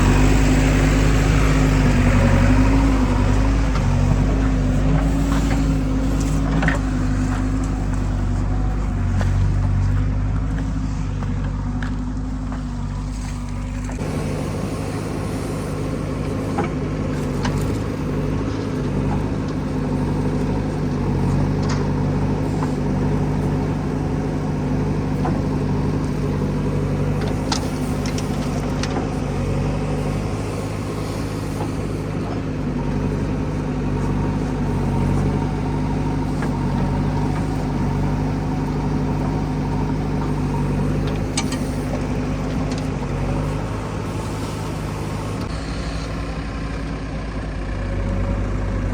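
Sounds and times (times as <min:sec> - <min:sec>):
heavy diesel engine running: 0:00.0 - 0:48.9.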